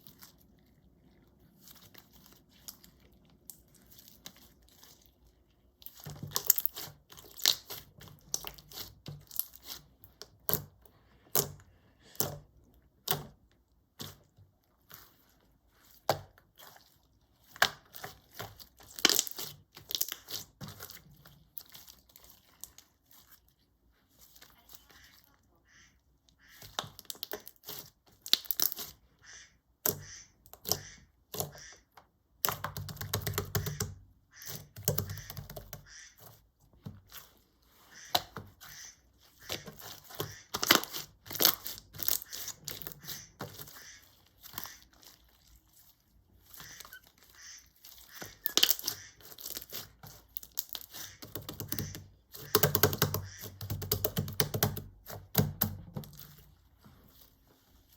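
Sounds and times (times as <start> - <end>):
slime popping and crackling: 5.8 - 10.7, 17.4 - 22.9, 26.7 - 28.9, 39.5 - 43.8, 47.9 - 56.3.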